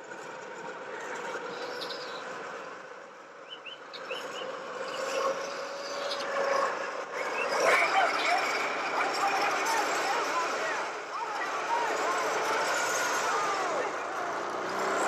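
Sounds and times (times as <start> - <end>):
bird chirps: 1.6 - 2.3, 3.4 - 5.2.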